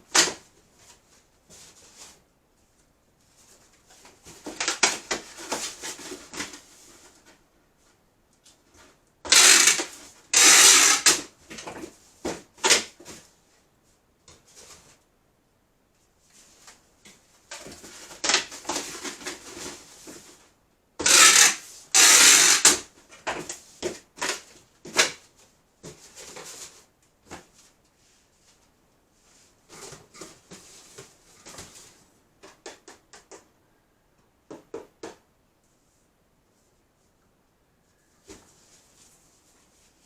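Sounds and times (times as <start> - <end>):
rustling handling noises: 0.1 - 9.2, 15.9 - 20.7, 22.9 - 33.0, 35.6 - 40.0.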